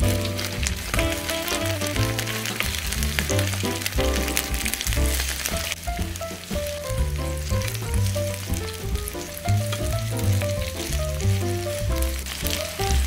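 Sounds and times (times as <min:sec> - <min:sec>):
pancakes sizzling in hot oil: 0:00.0 - 0:06.5
background music with bass line: 0:00.0 - 0:13.0.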